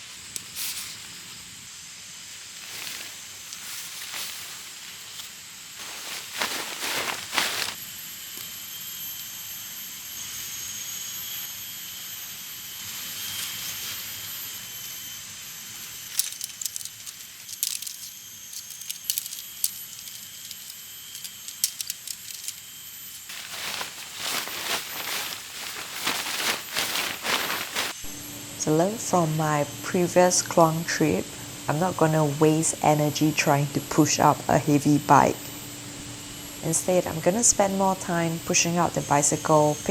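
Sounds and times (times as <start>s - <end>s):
camping gear rustling: 0.0s - 1.4s, 2.2s - 7.8s, 16.1s - 28.2s
high insect chorus: 0.0s - 39.9s.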